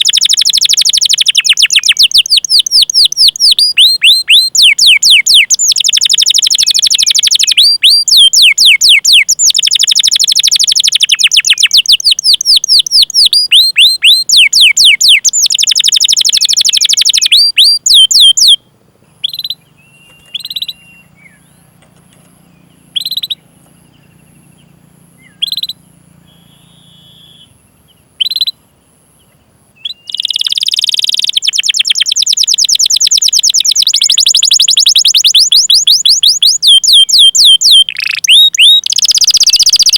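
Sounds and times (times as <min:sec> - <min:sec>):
canary singing rolling runs: 0:00.0 - 0:26.9
single bird chirps: 0:00.0 - 0:39.9.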